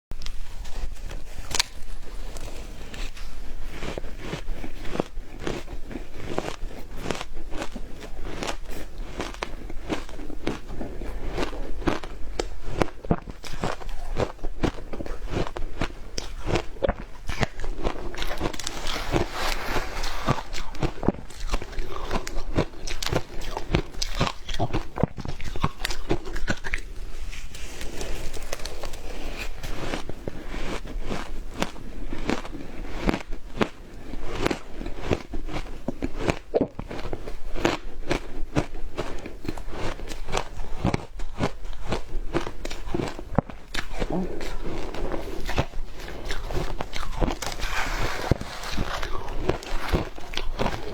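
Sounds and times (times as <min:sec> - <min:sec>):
ice crunching being chewed: 0:00.2 - 0:50.9.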